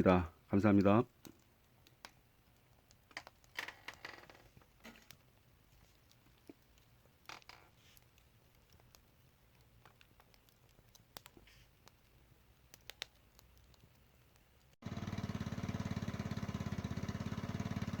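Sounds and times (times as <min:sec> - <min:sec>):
faint clicks: 0:00.8 - 0:14.8.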